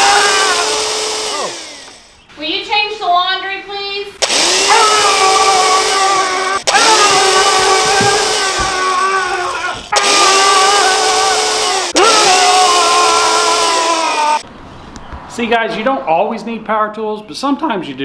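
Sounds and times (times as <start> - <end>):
power tool motor whining: 0.0 - 2.3, 4.2 - 14.4.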